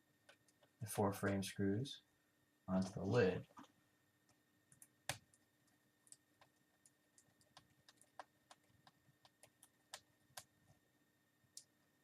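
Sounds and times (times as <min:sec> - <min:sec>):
light clicks and taps of laptop: 0:03.6 - 0:10.5.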